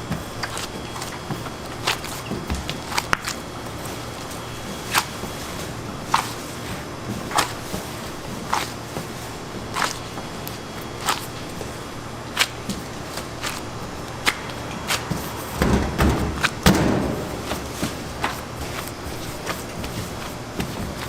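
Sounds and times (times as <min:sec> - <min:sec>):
heavy thump and clatter: 0:15.6 - 0:19.4.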